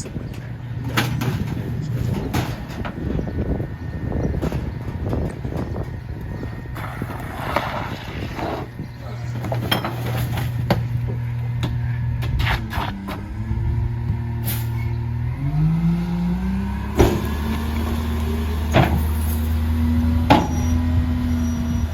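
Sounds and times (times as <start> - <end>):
garbage truck diesel engine revving: 10.2 - 21.9.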